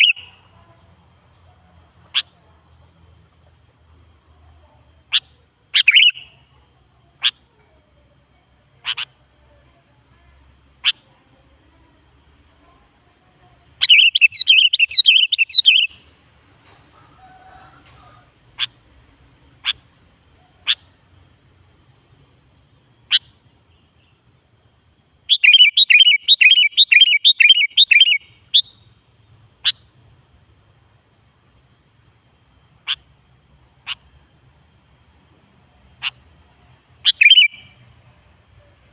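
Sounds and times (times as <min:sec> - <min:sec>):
bird call notes: 0:00.0 - 0:00.3, 0:05.8 - 0:06.3, 0:25.3 - 0:28.8, 0:37.0 - 0:37.8
rapid bird chirps: 0:00.0 - 0:00.5, 0:02.0 - 0:02.7, 0:04.6 - 0:06.5, 0:08.8 - 0:09.2, 0:13.8 - 0:16.1, 0:17.4 - 0:24.3, 0:24.9 - 0:30.4, 0:32.8 - 0:34.2, 0:35.9 - 0:37.9.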